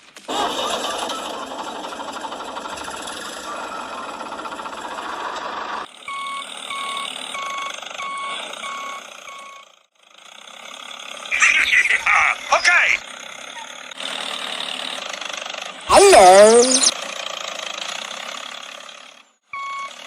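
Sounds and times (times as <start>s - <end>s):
tractor engine running: 0.1s - 20.0s
reversing alarm beeping: 6.1s - 9.7s, 19.6s - 20.0s.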